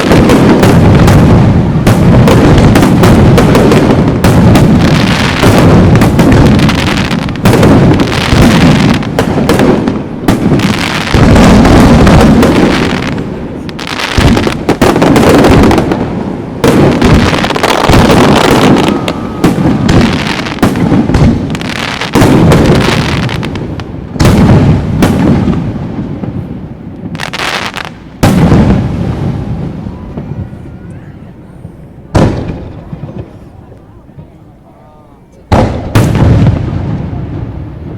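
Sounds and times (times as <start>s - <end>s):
fireworks booming: 0.0s - 37.9s.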